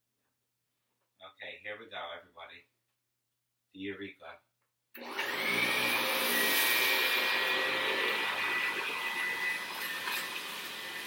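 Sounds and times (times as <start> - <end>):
vacuum cleaner motor whining: 5.0 - 11.0.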